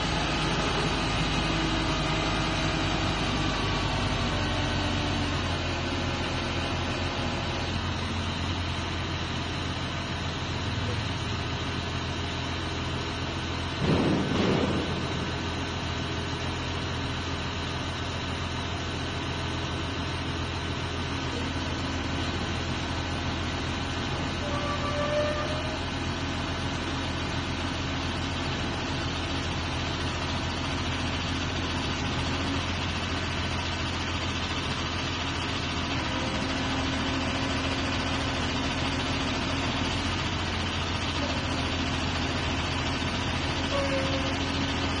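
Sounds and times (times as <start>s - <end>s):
truck engine humming: 0.0s - 45.0s.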